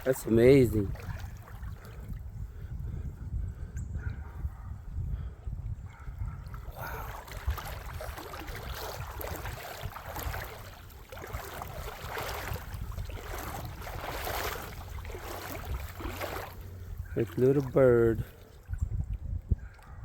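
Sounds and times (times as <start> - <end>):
wind rumbling on microphone: 0.0 - 20.0
creek water gurgling over rocks: 6.8 - 18.2.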